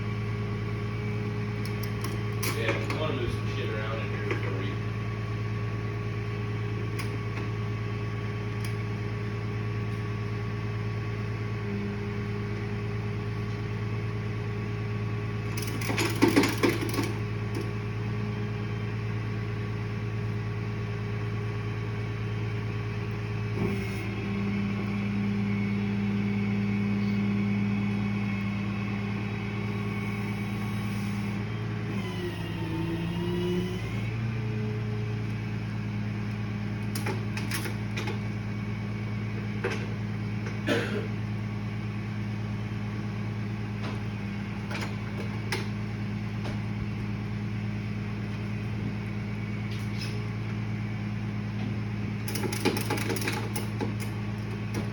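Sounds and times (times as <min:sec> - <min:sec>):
motor humming: 0:23.0 - 0:40.6.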